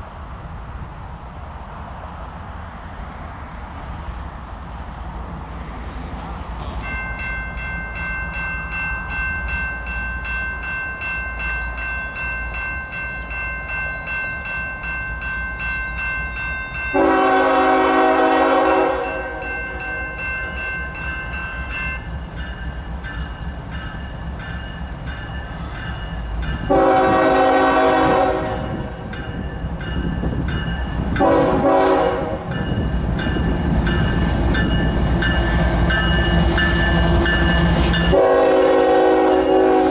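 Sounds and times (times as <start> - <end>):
train rumbling: 0.0 - 39.9
bell ringing rhythmically: 6.8 - 17.1, 19.0 - 26.7, 28.6 - 31.0, 32.5 - 38.2
locomotive horn blasts: 16.9 - 20.0, 26.6 - 29.1, 31.2 - 32.5, 37.1 - 39.9.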